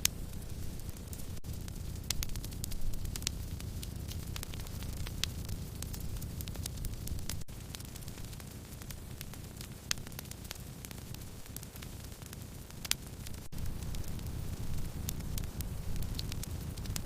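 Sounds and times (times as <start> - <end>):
low steady rumble: 0.0 - 11.9, 12.9 - 17.0
fire pops: 0.0 - 17.0
wood fire crackling: 0.0 - 17.0.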